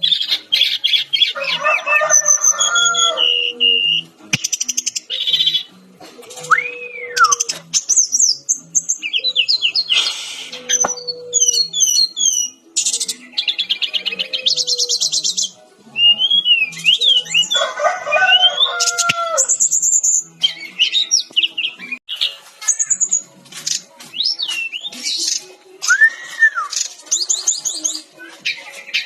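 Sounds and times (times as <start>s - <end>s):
bird singing varied song: 0.0s - 29.0s.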